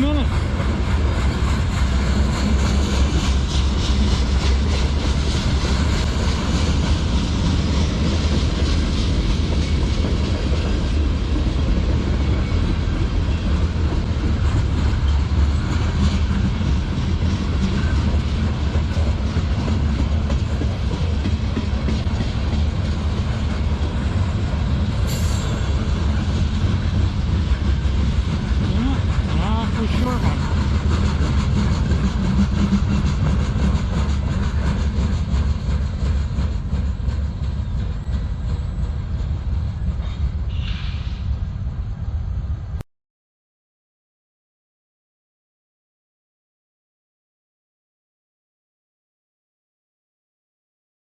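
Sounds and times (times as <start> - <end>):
freight train rumbling: 0.0 - 42.8.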